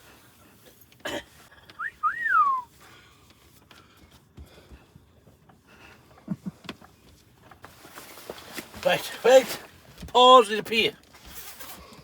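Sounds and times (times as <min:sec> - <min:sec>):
rustling: 0:06.8 - 0:10.1.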